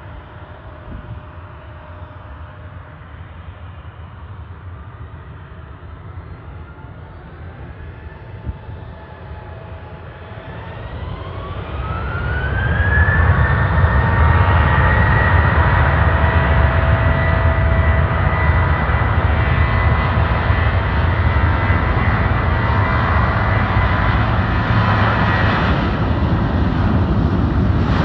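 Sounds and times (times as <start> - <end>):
jet engine whine: 0.0 - 28.0
deep engine rumble: 14.1 - 28.0.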